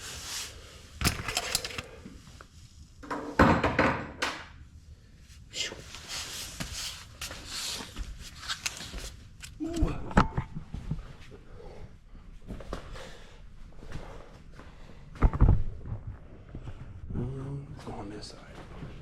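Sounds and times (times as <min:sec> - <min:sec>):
scraping or rustling: 0:00.0 - 0:02.0
handling knocks and clicks: 0:01.0 - 0:02.0.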